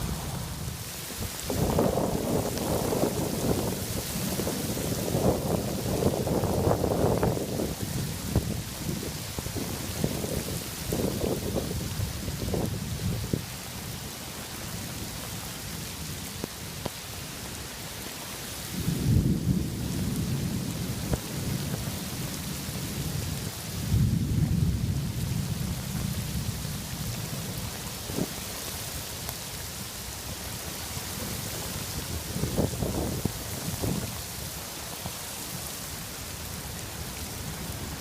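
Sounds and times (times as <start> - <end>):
heavy rain falling: 0.0 - 38.0
thunder rolling: 1.5 - 13.2, 18.8 - 22.4.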